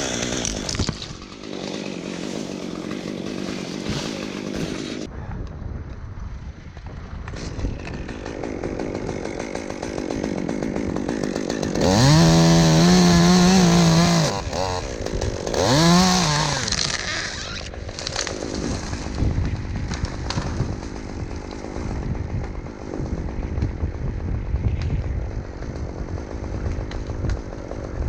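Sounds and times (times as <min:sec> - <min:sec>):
chainsaw revving: 0:00.0 - 0:05.1, 0:07.8 - 0:19.3.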